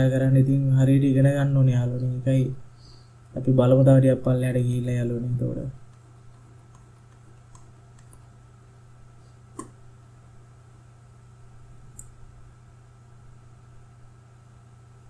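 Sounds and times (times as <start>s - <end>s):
low steady hum: 0.0s - 15.0s
computer mouse clicks: 6.7s - 8.2s.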